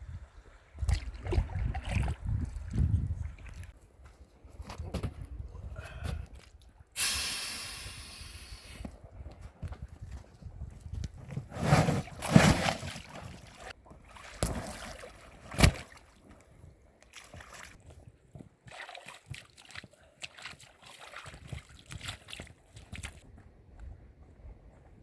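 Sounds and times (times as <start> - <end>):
water sloshing around kayak: 0.2 - 3.8, 11.6 - 17.9, 18.6 - 23.2.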